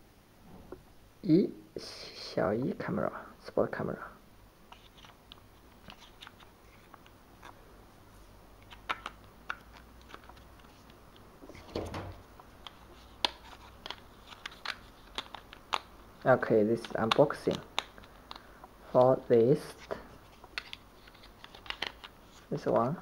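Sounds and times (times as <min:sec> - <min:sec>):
clicks and taps of handling packaging: 0:12.6 - 0:15.9, 0:16.8 - 0:19.1, 0:20.4 - 0:23.0.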